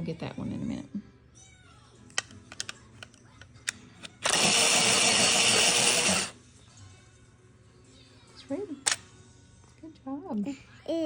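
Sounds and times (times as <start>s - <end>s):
electric pencil sharpener grinding: 4.0s - 6.4s.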